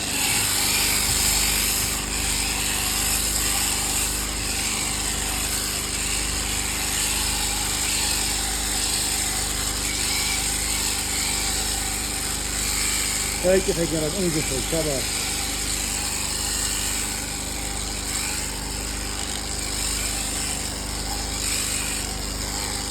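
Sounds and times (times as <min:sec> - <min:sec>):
electric clippers buzzing: 0:00.0 - 0:22.9.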